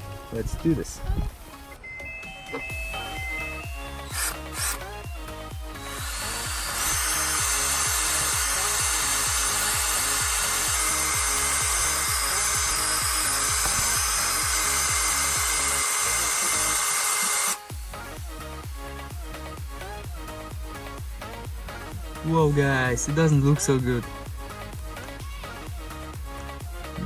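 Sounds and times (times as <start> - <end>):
background music with steady beat: 0.0 - 27.0
cordless drill boring: 3.0 - 17.7.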